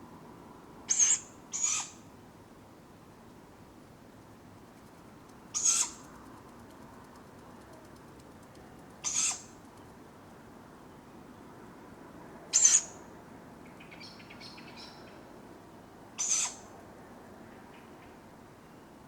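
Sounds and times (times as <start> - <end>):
small bird chirps: 5.3 - 6.6, 7.9 - 10.0.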